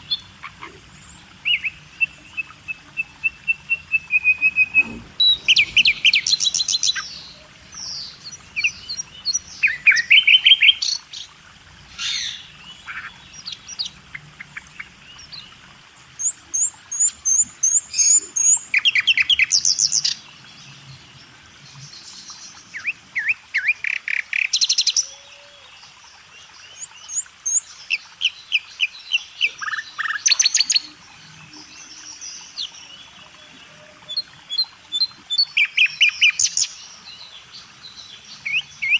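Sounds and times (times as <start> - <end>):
songbirds chirping and singing: 1.1 - 23.4, 29.2 - 38.9.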